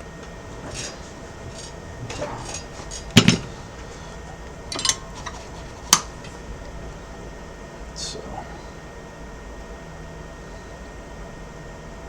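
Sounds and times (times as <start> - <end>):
metal tools clinking on workbench: 0.2 - 6.4.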